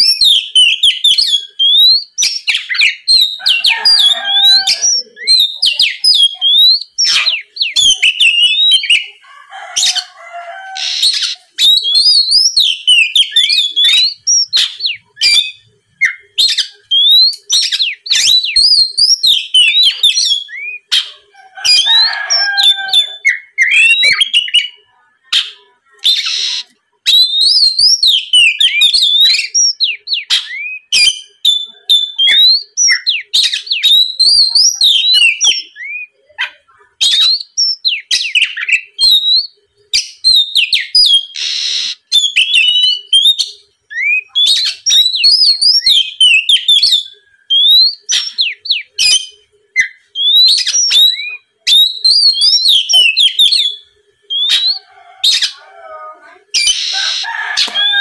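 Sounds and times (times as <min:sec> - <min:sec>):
bird singing whistled notes: 0:00.0 - 0:09.2, 0:10.8 - 0:21.1, 0:21.7 - 0:24.8, 0:26.0 - 0:36.2, 0:37.0 - 0:55.6, 0:56.6 - 0:58.0
harsh rasping bird call: 0:02.6 - 0:24.8, 0:26.1 - 0:26.7, 0:50.2 - 0:58.0.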